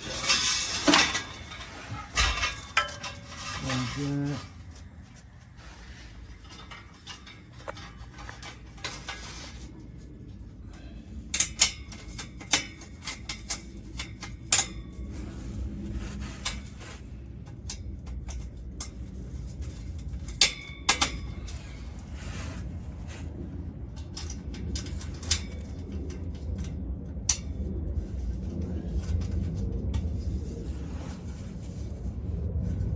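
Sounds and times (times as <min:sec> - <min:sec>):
metal pipe clinking and clanking: 0:00.0 - 0:09.9, 0:11.3 - 0:15.3, 0:16.3 - 0:22.1, 0:23.9 - 0:26.4.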